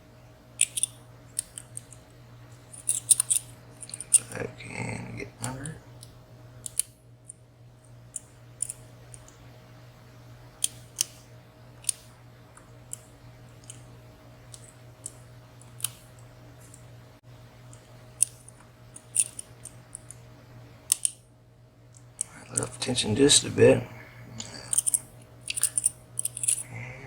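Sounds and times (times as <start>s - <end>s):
faint low hum: 0.0s - 27.0s
lock pick clicking in padlock: 0.6s - 2.0s, 2.8s - 4.1s, 20.9s - 21.2s.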